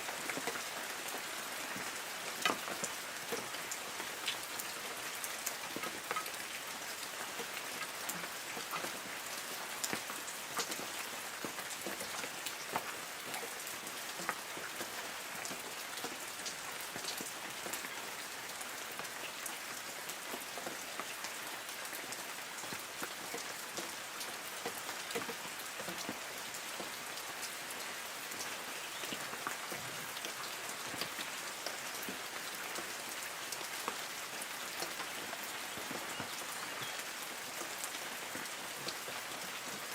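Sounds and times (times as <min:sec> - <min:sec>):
rain drops ticking on leaves: 0:00.0 - 0:39.9.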